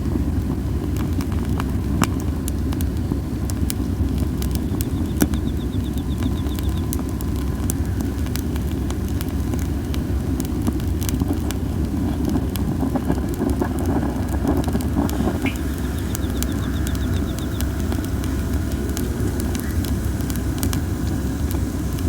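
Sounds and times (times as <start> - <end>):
campfire crackling and popping: 0.0 - 22.0
strong wind rumble: 0.0 - 22.0
wood hissing: 14.0 - 22.0
insect trilling: 15.2 - 22.0.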